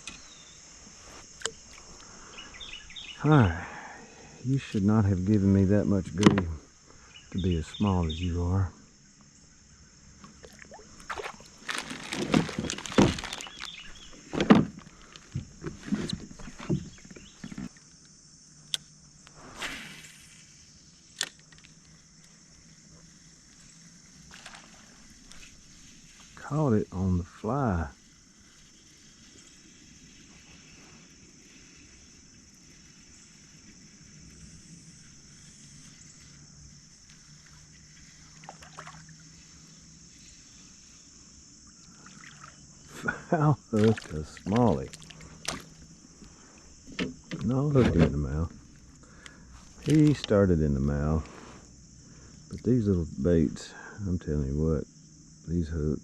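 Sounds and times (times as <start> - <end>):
steady high hiss: 0.0 - 11.7, 12.3 - 56.0
water sloshing: 10.2 - 17.8, 37.4 - 39.3, 41.8 - 43.0, 43.6 - 48.1
knocks and thumps on kayak hull: 11.1 - 17.7, 46.8 - 48.2
low uneven rumble: 42.7 - 54.9.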